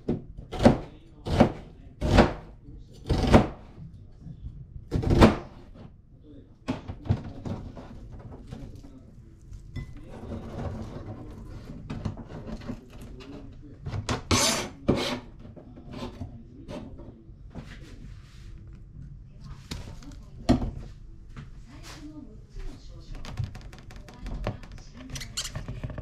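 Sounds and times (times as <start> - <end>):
utensils knocking and scraping: 9.8 - 17.1.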